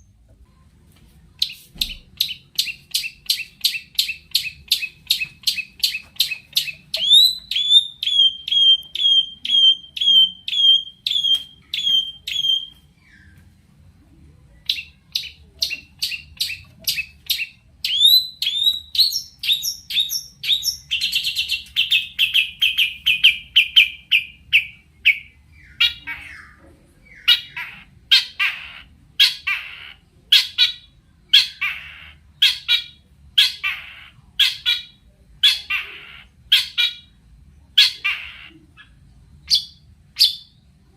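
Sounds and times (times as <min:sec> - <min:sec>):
shrike singing sharp repeated notes: 0:01.5 - 0:12.8.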